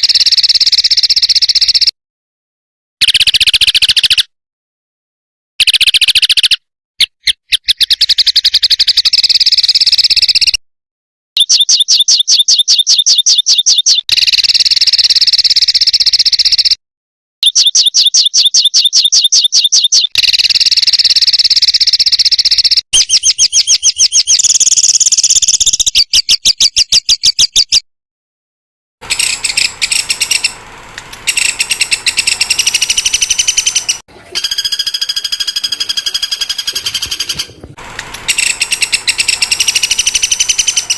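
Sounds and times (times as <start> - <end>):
songbird trilling: 3.0 - 4.3, 5.6 - 10.6, 11.4 - 16.8, 17.4 - 27.8, 29.0 - 30.6, 31.2 - 37.6, 38.2 - 40.9.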